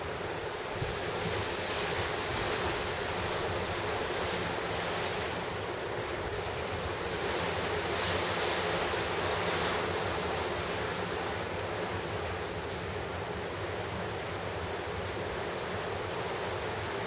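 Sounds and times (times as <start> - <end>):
surf breaking on shore: 0.5 - 12.9
wind on microphone: 0.6 - 5.3.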